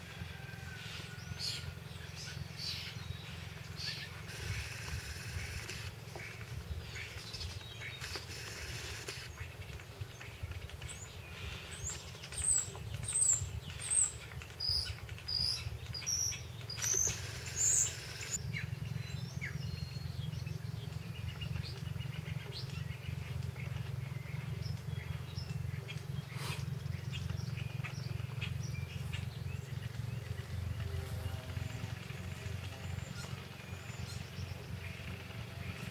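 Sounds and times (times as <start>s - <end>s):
bird chirping: 0.0s - 35.9s
steady low rumble: 0.0s - 35.9s.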